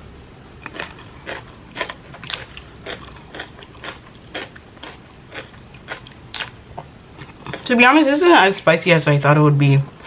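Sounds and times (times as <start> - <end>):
chewing crunchy food: 0.6 - 7.7.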